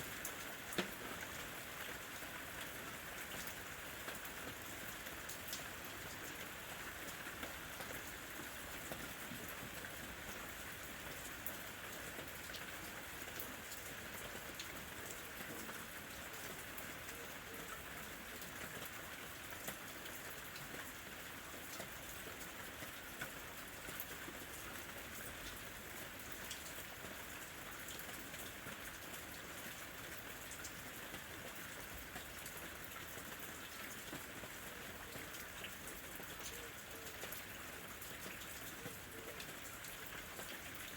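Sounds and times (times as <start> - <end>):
steady rain falling: 0.0 - 40.9
raindrops ticking: 0.3 - 1.3.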